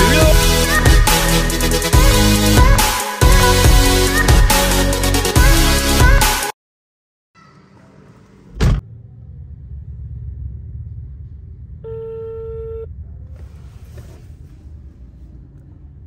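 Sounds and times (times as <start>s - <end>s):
low rumble inside car: 8.8s - 16.0s.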